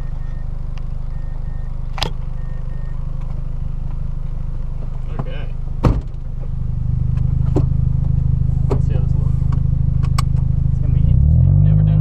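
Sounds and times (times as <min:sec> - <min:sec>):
faint beep: 0:00.0 - 0:03.0
car engine idling: 0:00.0 - 0:12.0.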